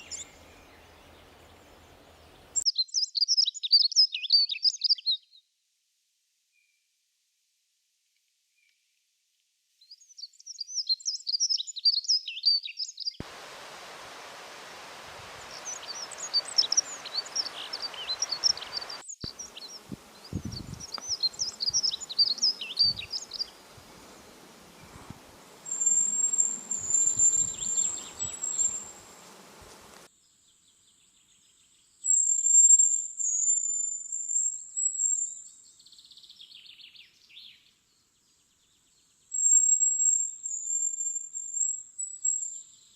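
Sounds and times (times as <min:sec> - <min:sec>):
birds twittering: 0:00.0 - 0:02.6, 0:13.4 - 0:30.0.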